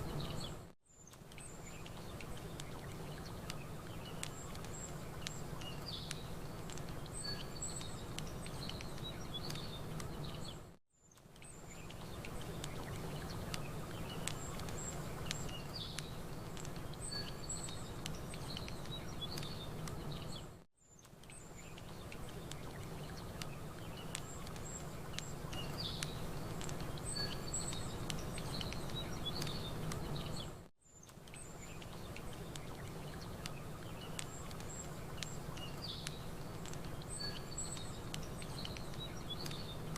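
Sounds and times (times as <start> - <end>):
small birds chirping: 0.0 - 39.9
campfire crackling and popping: 1.1 - 10.6, 11.2 - 20.4, 21.0 - 39.9.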